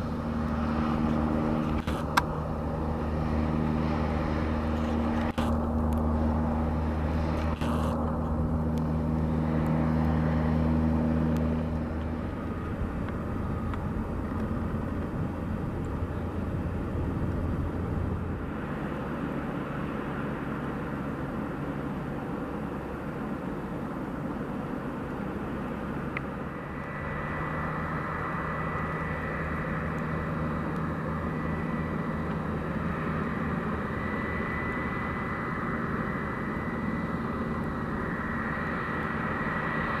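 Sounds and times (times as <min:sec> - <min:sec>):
engine drone: 0:00.0 - 0:40.0
outdoor noise: 0:00.0 - 0:40.0
thin high whine: 0:25.5 - 0:40.0.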